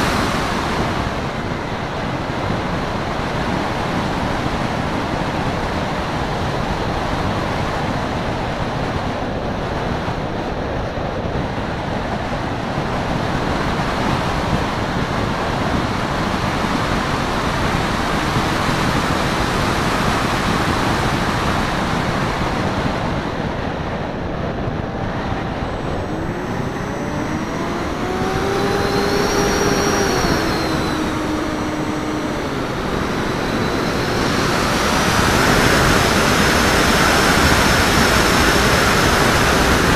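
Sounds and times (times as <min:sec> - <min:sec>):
electric motor and propeller whine: 0:00.0 - 0:39.9
airflow rushing over camera: 0:24.1 - 0:39.8.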